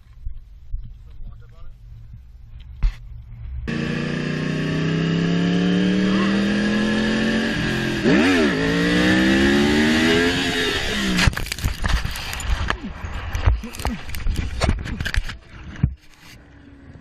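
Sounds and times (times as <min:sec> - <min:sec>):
motorcycle engine accelerating: 0:03.6 - 0:11.4.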